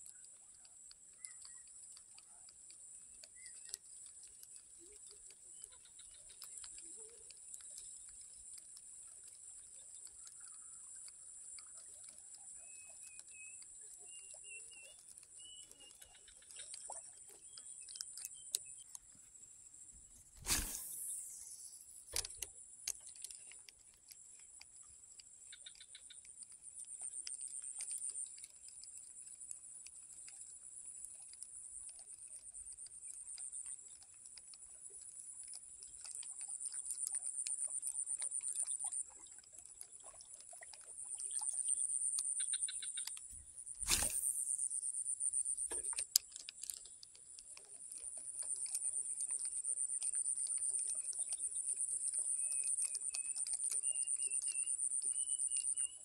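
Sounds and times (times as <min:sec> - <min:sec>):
small clicks: 0:00.0 - 0:56.0
insects buzzing: 0:20.1 - 0:22.4, 0:41.5 - 0:45.9
sharp thumps: 0:20.3 - 0:22.3, 0:43.8 - 0:44.4.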